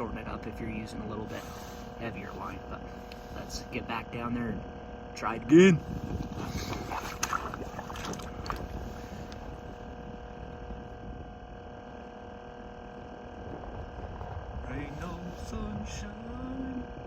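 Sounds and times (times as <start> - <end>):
faint steady hum: 0.0 - 17.0
wind rumble on microphone: 0.0 - 17.0.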